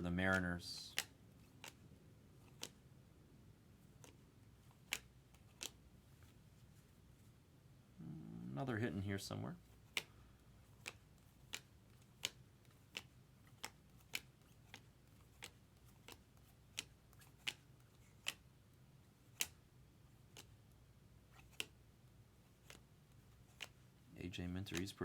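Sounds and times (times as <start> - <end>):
trading cards clicking off stack: 2.4 - 2.8, 4.0 - 5.8, 10.8 - 18.4, 24.6 - 25.0.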